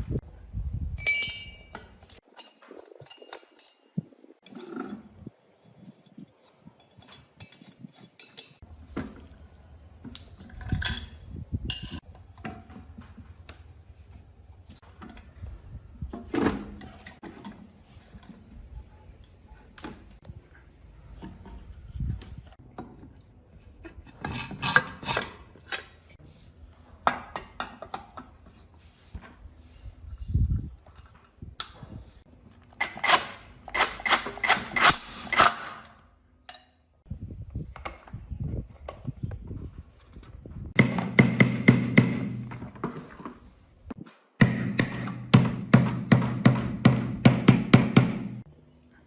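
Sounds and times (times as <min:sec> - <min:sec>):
metal tools clinking: 0:01.0 - 0:05.0, 0:05.7 - 0:08.6.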